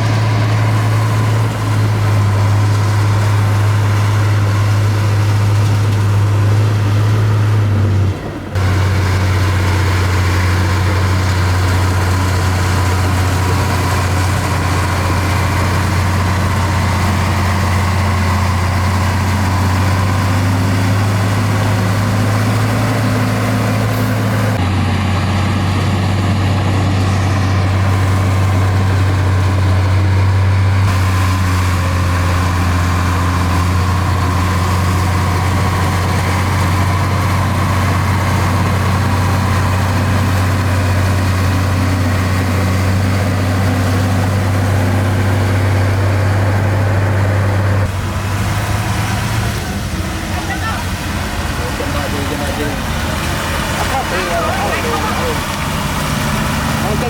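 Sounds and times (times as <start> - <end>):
heavy machinery diesel engine humming: 0.0 - 57.0.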